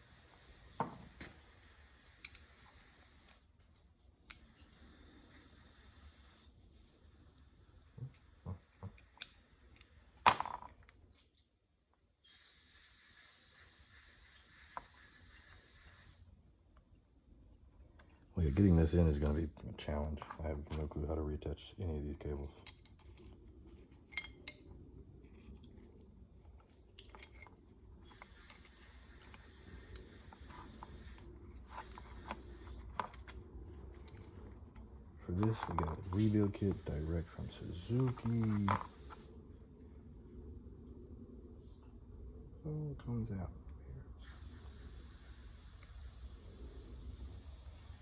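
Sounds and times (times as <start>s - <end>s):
small metal parts clicking: 2.0s - 3.4s, 22.4s - 36.8s
hands rubbing parts: 22.3s - 40.5s.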